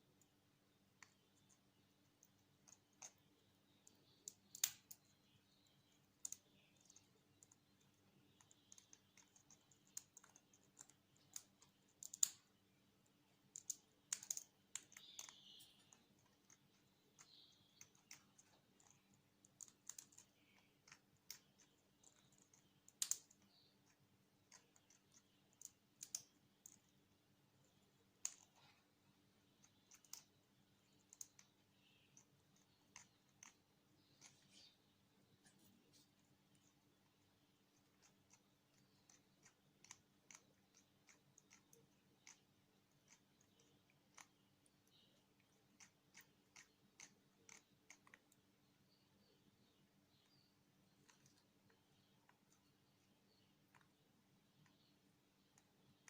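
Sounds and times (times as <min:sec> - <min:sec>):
parrot beak nibbling leaves: 0:01.0 - 0:05.0, 0:06.1 - 0:12.5, 0:13.3 - 0:27.0, 0:28.0 - 0:34.8, 0:35.4 - 0:48.4.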